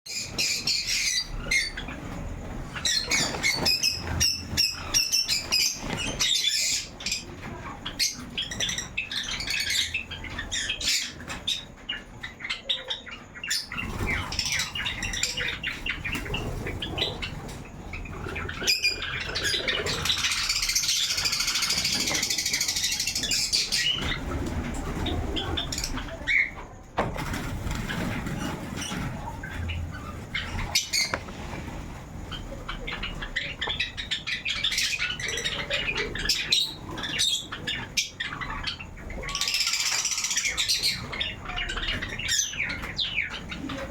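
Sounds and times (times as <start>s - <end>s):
sparrows chirping and squawking: 0.1s - 43.9s
wings flapping: 27.1s - 34.2s.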